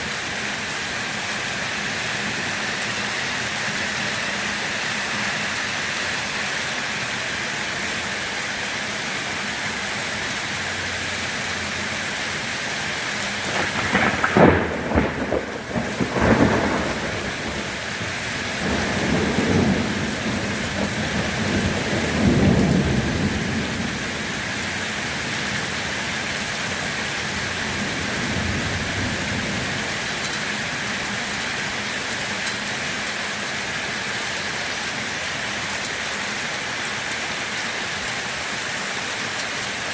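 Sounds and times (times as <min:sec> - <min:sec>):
rain hissing: 0:00.0 - 0:39.9
thunder crack and rumble: 0:13.4 - 0:25.7.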